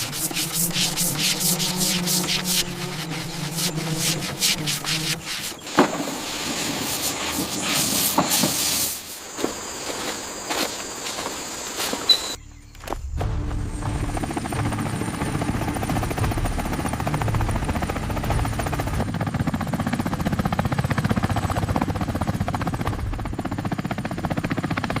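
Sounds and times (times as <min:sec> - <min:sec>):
helicopter rotor blades chopping: 0:00.0 - 0:11.7, 0:13.2 - 0:25.0
background music: 0:12.4 - 0:19.2.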